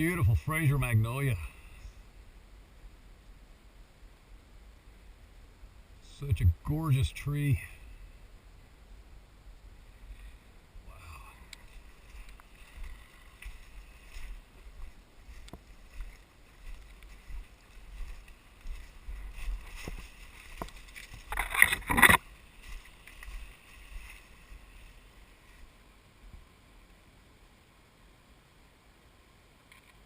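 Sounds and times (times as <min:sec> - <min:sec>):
leaves and twigs crackling: 0:09.8 - 0:25.9
footsteps through undergrowth: 0:11.5 - 0:25.8.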